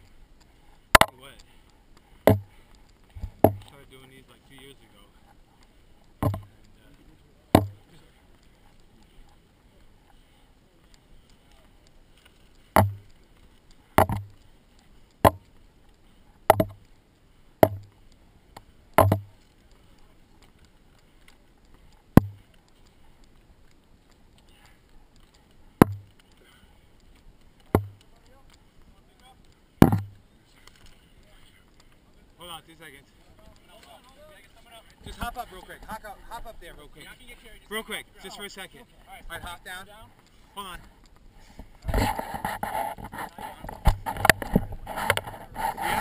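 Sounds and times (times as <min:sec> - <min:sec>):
faint steady hiss: 0:00.0 - 0:46.0
sharp knocks: 0:02.2 - 0:02.5, 0:03.2 - 0:03.7, 0:06.2 - 0:06.5, 0:07.6 - 0:07.8, 0:12.8 - 0:13.0, 0:14.0 - 0:14.3, 0:15.2 - 0:15.5, 0:16.5 - 0:16.8, 0:17.6 - 0:17.9, 0:19.0 - 0:19.3, 0:22.2 - 0:22.4, 0:25.8 - 0:26.1, 0:27.7 - 0:28.0, 0:29.8 - 0:30.1.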